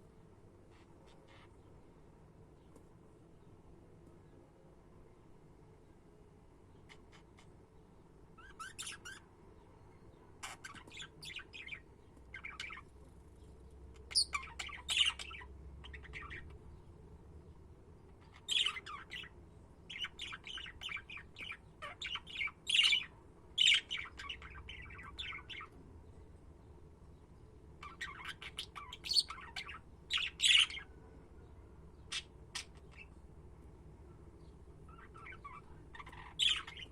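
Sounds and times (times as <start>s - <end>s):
budgerigars chirping: 8.4s - 9.2s, 10.4s - 12.8s, 14.0s - 16.6s, 18.2s - 19.3s, 19.9s - 25.7s, 27.8s - 30.9s, 32.0s - 33.1s, 34.9s - 36.9s.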